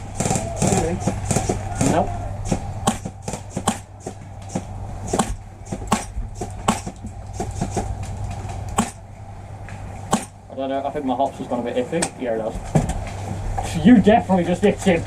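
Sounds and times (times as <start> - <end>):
steady low hum: 0.0 - 15.0
airsoft rifle shots clicking: 2.8 - 4.0, 5.1 - 7.1, 8.7 - 9.1, 10.1 - 10.4.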